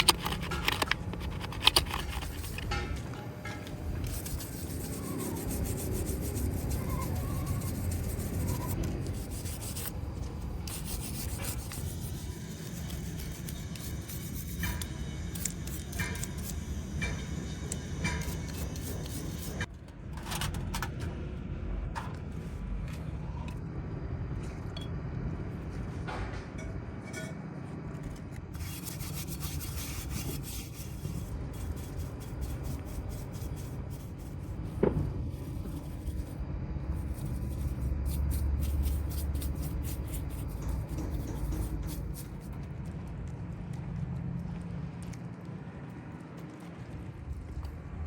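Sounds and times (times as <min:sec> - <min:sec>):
hands rubbing and scraping parts: 0:00.0 - 0:20.6, 0:28.0 - 0:42.9.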